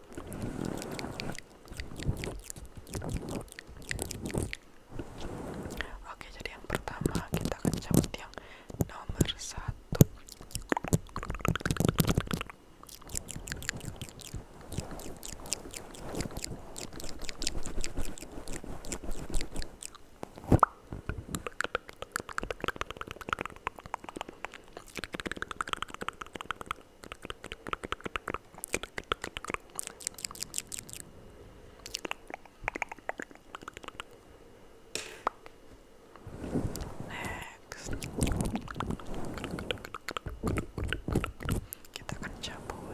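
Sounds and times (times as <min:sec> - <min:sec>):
wet mouth clicks and smacks: 0:00.1 - 0:04.7, 0:06.8 - 0:08.2, 0:09.9 - 0:20.0, 0:20.6 - 0:31.0, 0:31.8 - 0:34.2, 0:37.9 - 0:42.2.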